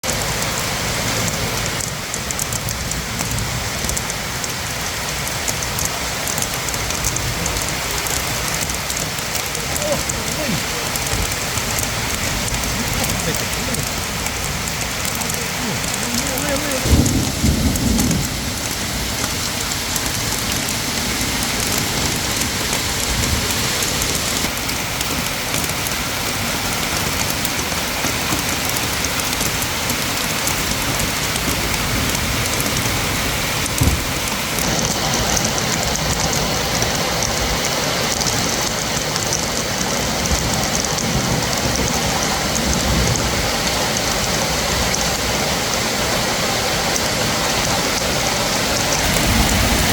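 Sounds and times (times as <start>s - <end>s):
heavy rain pouring: 0.0s - 49.9s
knock: 33.8s - 34.1s.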